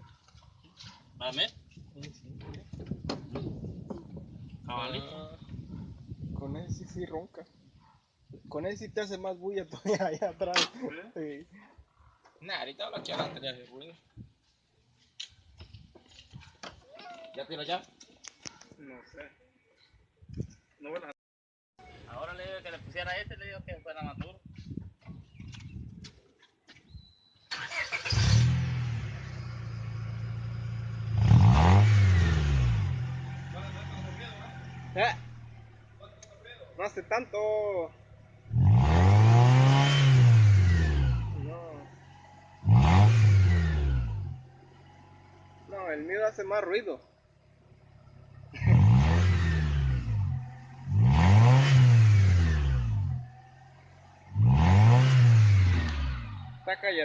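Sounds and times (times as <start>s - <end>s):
car engine running and revving: 28.1s - 37.2s, 37.8s - 46.0s, 47.2s - 56.6s.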